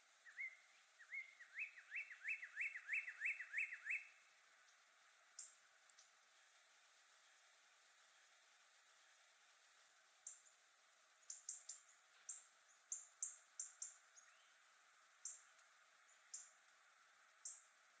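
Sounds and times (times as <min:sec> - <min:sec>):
faint steady hiss: 0:00.0 - 0:18.0
small bird chirping: 0:00.2 - 0:06.6, 0:10.2 - 0:10.6, 0:11.2 - 0:16.6, 0:17.4 - 0:17.8.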